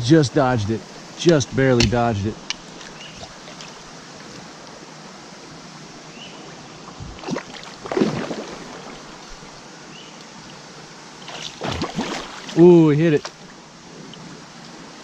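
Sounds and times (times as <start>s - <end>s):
splashes in water: 7.1s - 9.6s, 11.2s - 13.5s.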